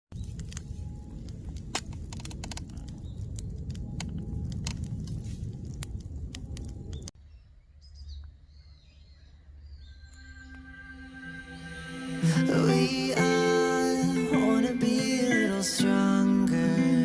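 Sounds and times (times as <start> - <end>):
faint birds chirping: 0.1 - 5.0, 5.6 - 13.4
campfire crackling: 0.1 - 7.2, 12.0 - 17.0.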